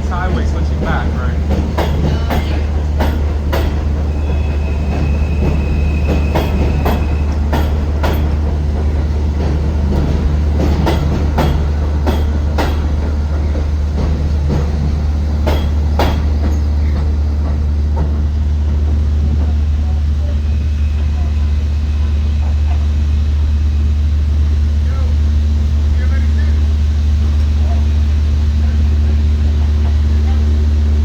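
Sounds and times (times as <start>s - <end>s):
wheels clicking over rail joints: 0.0s - 23.6s
subway train rumbling: 0.0s - 31.0s.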